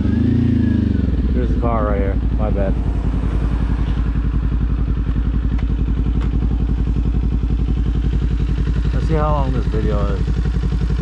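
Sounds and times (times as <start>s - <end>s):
motorcycle engine at steady throttle: 0.0s - 11.0s.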